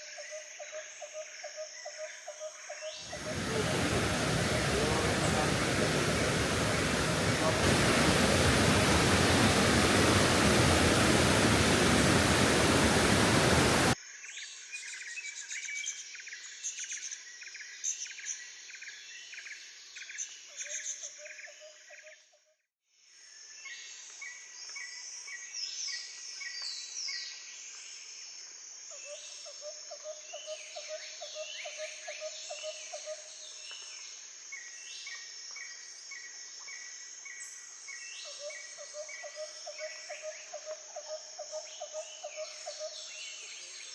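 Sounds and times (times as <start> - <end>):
birds calling: 3.1 - 14.0
insects chirping: 3.1 - 14.0
loud steady rushing noise: 3.1 - 14.0.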